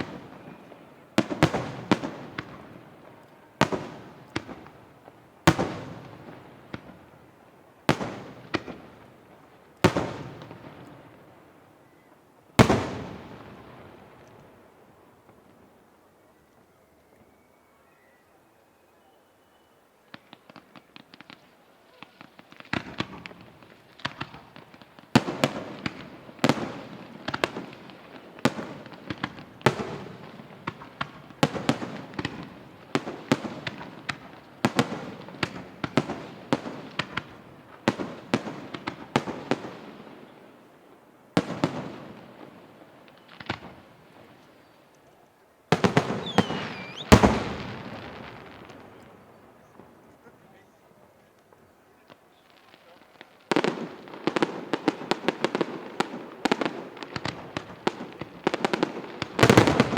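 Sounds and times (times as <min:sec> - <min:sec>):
faint crackle: 0:00.0 - 0:59.9
firework shells bursting: 0:45.8 - 0:50.1
firework whistling glide: 0:46.1 - 0:47.6.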